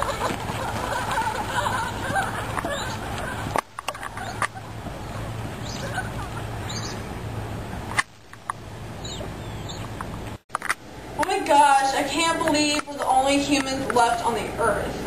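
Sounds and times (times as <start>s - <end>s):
birds chirping: 0.0s - 10.4s
low hum: 0.0s - 15.0s
outdoor background hiss: 0.0s - 15.0s.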